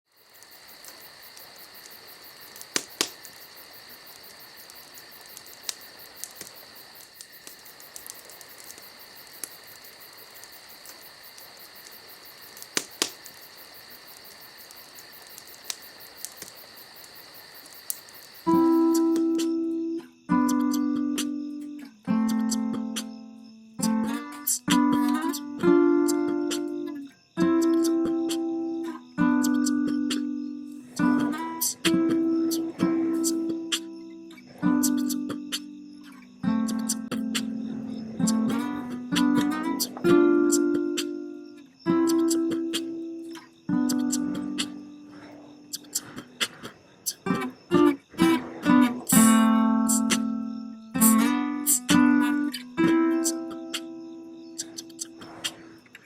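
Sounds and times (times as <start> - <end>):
insects chirping: 0.1 - 56.0
light high percussive ticks: 0.4 - 3.5, 4.2 - 13.4, 14.1 - 19.6, 42.0 - 44.8, 54.6 - 55.6
sharp clicks or taps: 2.7 - 3.2.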